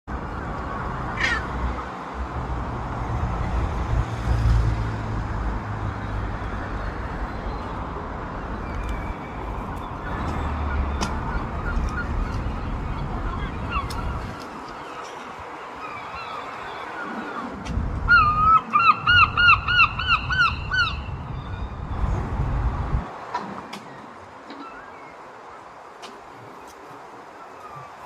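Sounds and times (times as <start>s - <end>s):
low rumble of background noise: 0.1s - 28.0s
seagulls calling: 0.3s - 1.8s, 6.6s - 22.2s, 23.2s - 28.0s.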